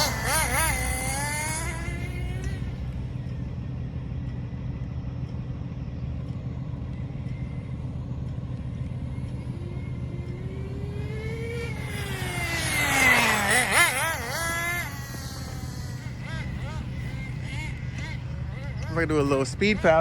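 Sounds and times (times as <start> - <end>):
rc car engine running: 0.0 - 3.3, 8.8 - 20.0.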